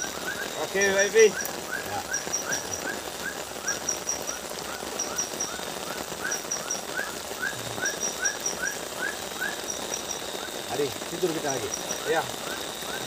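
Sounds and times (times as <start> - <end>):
rising and falling animal chirp: 0.0 - 10.7, 11.5 - 13.0
steady hiss: 0.0 - 13.0
very high animal ticks: 3.7 - 7.0, 9.5 - 12.2.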